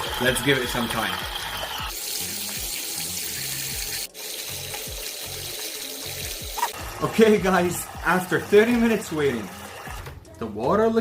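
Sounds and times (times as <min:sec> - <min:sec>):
water churning in washing machine: 0:00.0 - 0:02.0, 0:04.1 - 0:10.1
background music with beat: 0:00.0 - 0:11.0.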